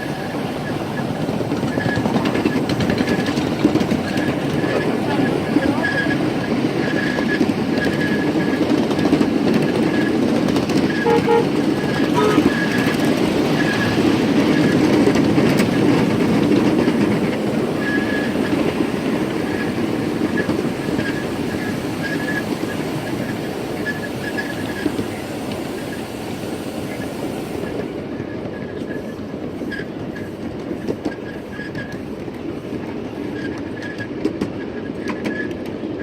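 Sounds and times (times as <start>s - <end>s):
steam train toot: 0.0s - 8.7s, 9.7s - 28.0s
train wheels rumbling on track: 0.0s - 36.0s
wheels clicking over rail joints: 0.0s - 36.0s.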